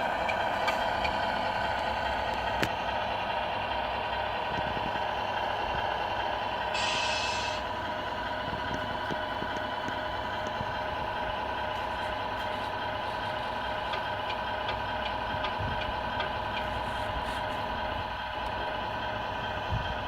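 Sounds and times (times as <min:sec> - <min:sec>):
model truck motor humming: 0:00.0 - 0:20.0.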